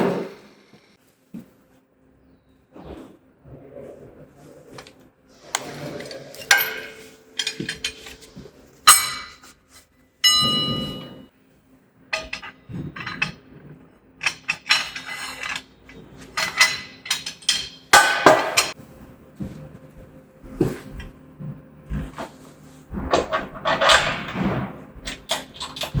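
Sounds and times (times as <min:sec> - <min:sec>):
metal clanks and clinks: 0:05.6 - 0:09.6, 0:10.2 - 0:11.3, 0:12.2 - 0:13.4, 0:14.2 - 0:18.8, 0:23.1 - 0:26.0
ringing metal strike: 0:06.4 - 0:09.5, 0:10.2 - 0:11.3.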